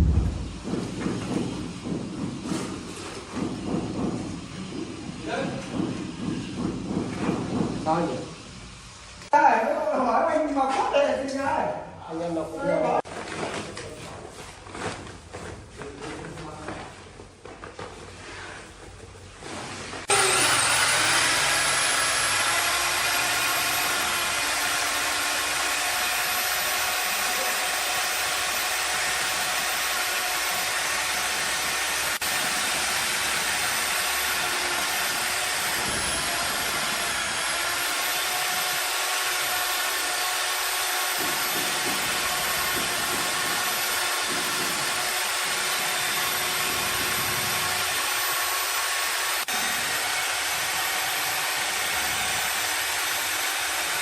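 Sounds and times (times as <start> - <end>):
power tool motor running: 20.0 - 54.0.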